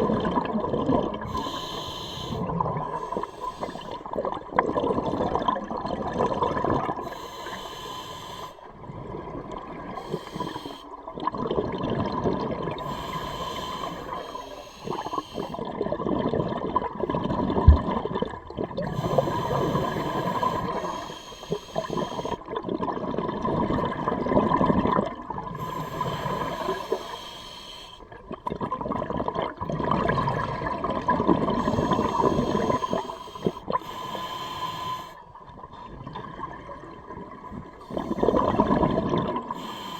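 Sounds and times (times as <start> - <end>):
exhaled bubbles rushing: 0.0 - 1.4, 2.4 - 7.0, 11.0 - 12.9, 15.6 - 20.8, 21.9 - 25.6, 28.1 - 33.0, 35.5 - 39.6
regulator inhale hiss: 1.3 - 4.1, 7.0 - 8.7, 9.8 - 11.0, 12.8 - 15.7, 18.9 - 22.5, 25.6 - 28.1, 31.6 - 35.3, 37.8 - 38.6, 39.5 - 39.9.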